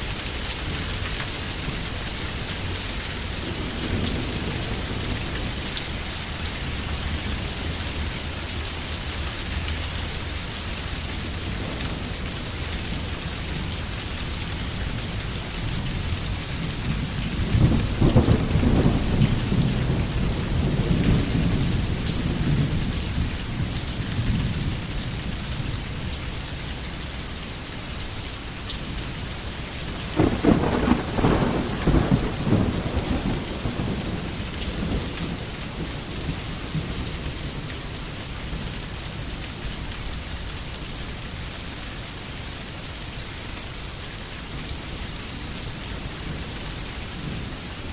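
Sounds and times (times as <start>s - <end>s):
rain falling in a forest: 0.0s - 47.9s
thunder rumbling: 3.2s - 8.1s, 14.5s - 24.9s, 29.9s - 37.7s.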